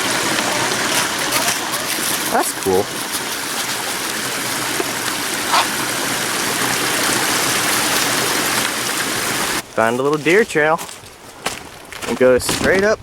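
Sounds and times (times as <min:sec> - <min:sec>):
small waterfall splashing: 0:00.0 - 0:10.7.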